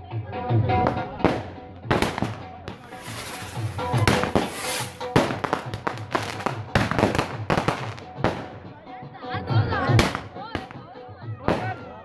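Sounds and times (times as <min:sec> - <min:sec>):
music with a steady beat: 0:00.0 - 0:12.0
fireworks bangs and crackles: 0:00.8 - 0:08.8, 0:09.9 - 0:12.0
firework hiss: 0:02.7 - 0:08.0.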